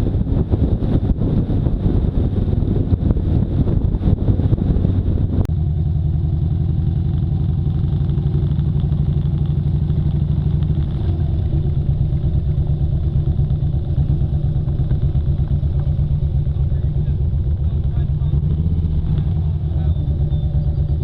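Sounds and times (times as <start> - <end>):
wind-like rush: 0.0 - 5.5
motorcycle engine idling: 0.0 - 21.0.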